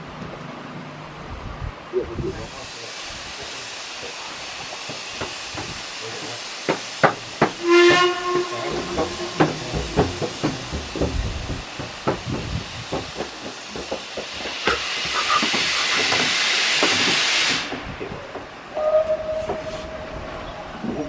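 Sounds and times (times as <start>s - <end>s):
steam hissing: 1.9s - 21.0s
metallic clanks: 6.7s - 14.0s
steam whistle blast: 7.6s - 10.0s, 18.8s - 20.5s.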